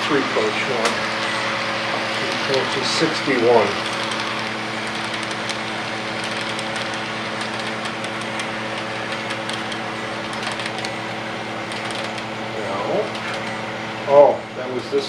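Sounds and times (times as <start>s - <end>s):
model train hum: 0.0s - 15.0s
light rapid clicks: 3.6s - 11.0s, 11.6s - 12.3s.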